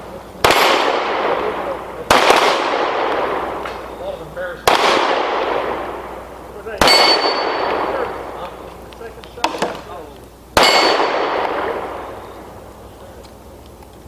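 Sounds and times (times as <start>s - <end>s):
pistol shot: 0.4s - 4.0s, 4.6s - 8.5s, 9.4s - 10.0s, 10.6s - 12.6s
steel plate ringing: 6.8s - 8.0s, 10.6s - 11.4s.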